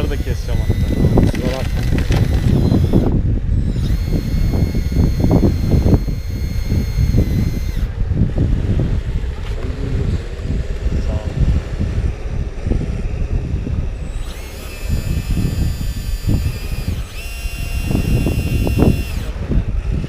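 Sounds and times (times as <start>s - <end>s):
toy motor whining: 0.0s - 7.9s, 14.0s - 20.0s
wind buffeting microphone: 0.0s - 20.0s.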